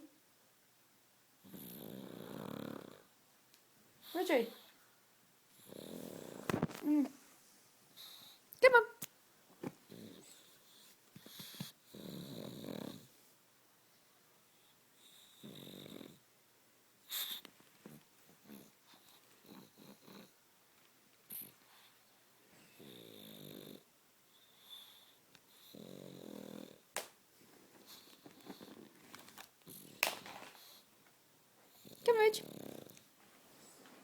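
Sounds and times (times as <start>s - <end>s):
dog snoring: 1.4s - 3.1s, 5.5s - 6.6s, 9.9s - 13.2s, 15.0s - 16.2s, 17.1s - 20.4s, 22.6s - 26.9s, 31.7s - 33.0s.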